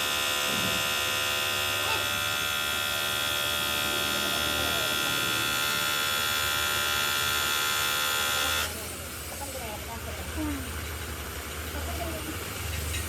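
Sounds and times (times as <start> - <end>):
machine hum: 0.0 - 8.7.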